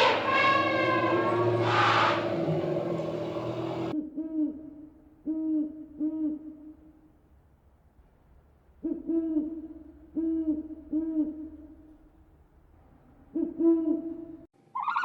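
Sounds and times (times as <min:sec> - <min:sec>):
bird hooting calls: 0:00.0 - 0:03.9, 0:13.2 - 0:14.4
high animal call: 0:00.0 - 0:03.9.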